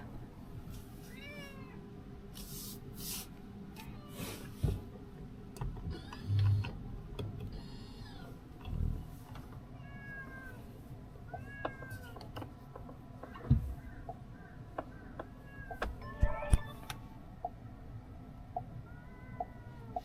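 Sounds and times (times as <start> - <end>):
low road rumble: 4.6 - 20.0.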